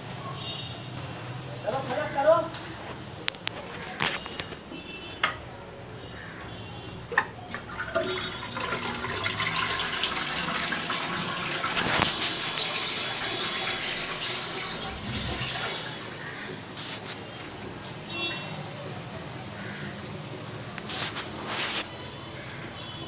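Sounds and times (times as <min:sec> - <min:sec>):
toilet flush click: 0:07.2 - 0:16.6
water rushing from toilet tank: 0:07.5 - 0:16.8.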